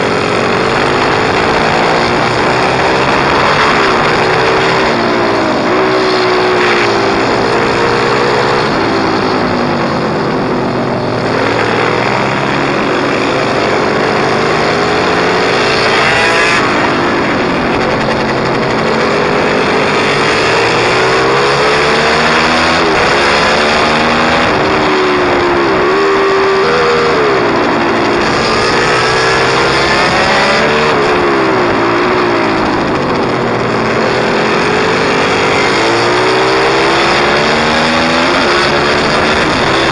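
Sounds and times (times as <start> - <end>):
small engine revving: 0.0 - 39.9.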